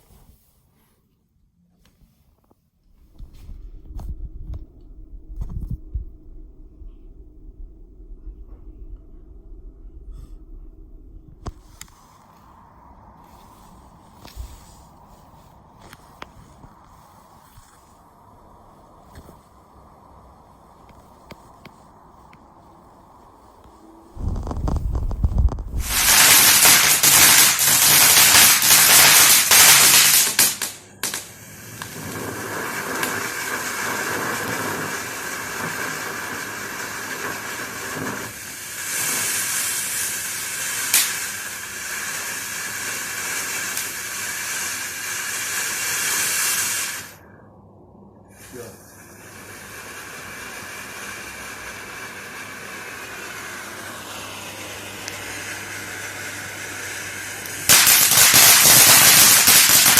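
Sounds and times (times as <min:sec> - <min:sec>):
fireworks crackling: 0:02.9 - 0:08.9, 0:10.1 - 0:47.2, 0:48.3 - 0:59.9
firework fountain hissing: 0:11.4 - 0:47.4, 0:48.3 - 0:59.9
sharp firework crack: 0:23.5 - 0:47.2, 0:48.3 - 0:59.9.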